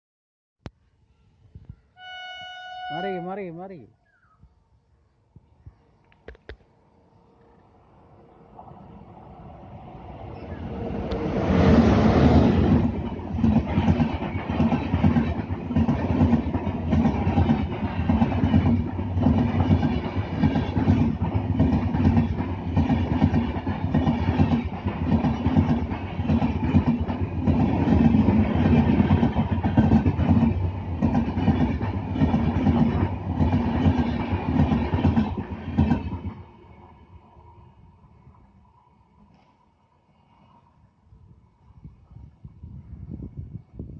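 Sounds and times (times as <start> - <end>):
train wheels clickety-clack: 11.0 - 36.4.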